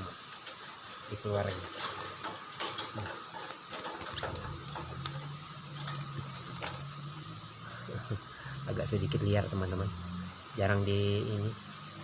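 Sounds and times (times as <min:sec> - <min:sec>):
low steady hum: 0:00.0 - 0:12.0
bird cage clicks and rattles: 0:01.6 - 0:07.3.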